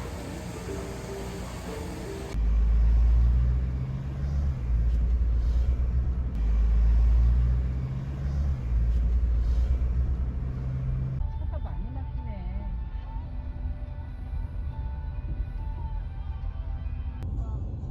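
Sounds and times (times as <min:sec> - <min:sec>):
music: 0:00.0 - 0:02.4, 0:11.2 - 0:17.9
deep vehicle rumble: 0:00.0 - 0:17.9
low hum: 0:00.0 - 0:17.9.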